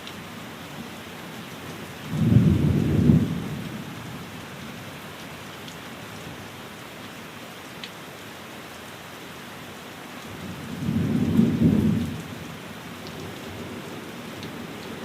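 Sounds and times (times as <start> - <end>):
rain on a window: 0.0 - 15.0
roll of thunder: 2.1 - 3.6.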